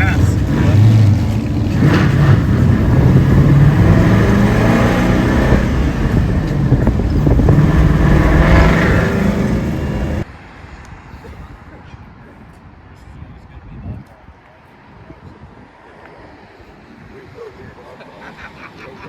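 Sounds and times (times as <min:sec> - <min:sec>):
car engine accelerating: 0:00.0 - 0:10.3.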